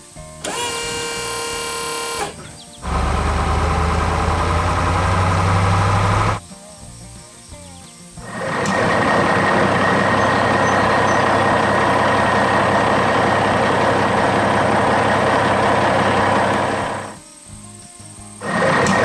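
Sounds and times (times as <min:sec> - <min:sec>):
heavy machinery engine running: 0:00.4 - 0:06.4, 0:08.2 - 0:17.2, 0:18.4 - 0:19.0
steady high whine: 0:00.5 - 0:06.4, 0:08.3 - 0:17.2.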